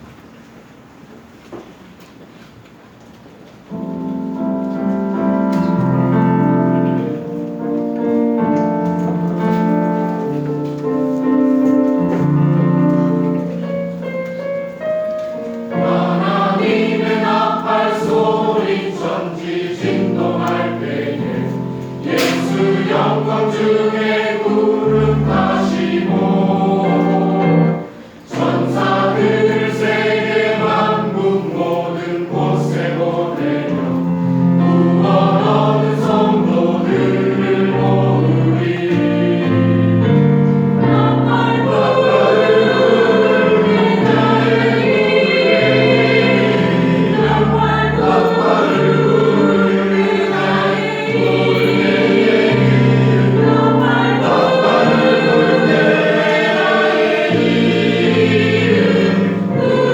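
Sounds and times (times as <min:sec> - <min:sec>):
choir singing a hymn: 0:03.7 - 0:59.9.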